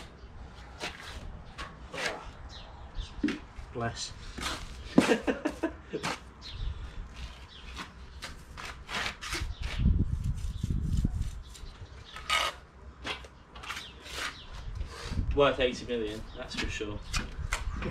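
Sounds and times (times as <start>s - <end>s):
trowel scraping and slapping mortar: 0.0s - 2.4s, 4.3s - 6.3s, 7.2s - 14.5s.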